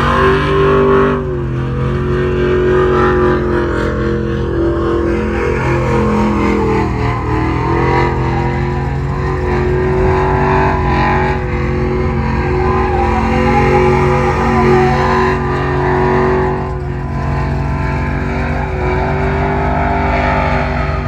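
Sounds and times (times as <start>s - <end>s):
truck engine at high revs: 0.0s - 21.0s.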